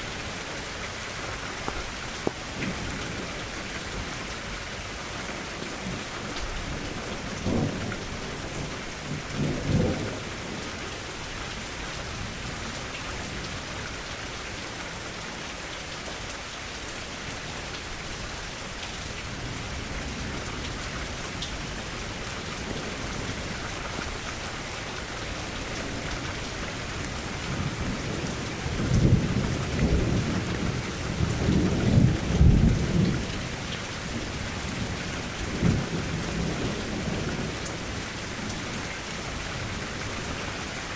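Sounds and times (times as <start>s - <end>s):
rain falling: 0.0s - 40.9s
thunder rumbling: 5.5s - 11.0s.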